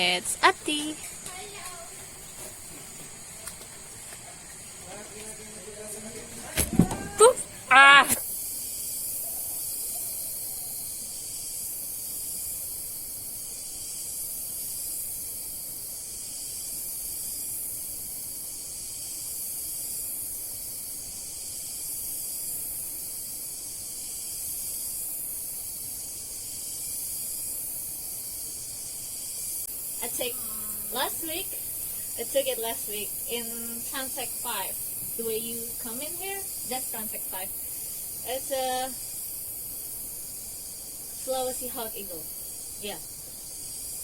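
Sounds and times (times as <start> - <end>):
high-pitched hiss: 0.0 - 44.0.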